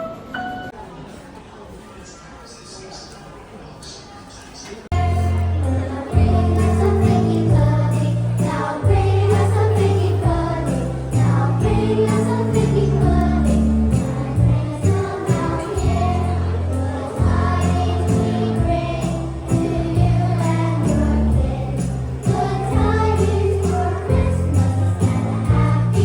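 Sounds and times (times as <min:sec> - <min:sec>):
voices singing: 0:04.9 - 0:26.0
sleigh bells ringing: 0:05.2 - 0:26.0.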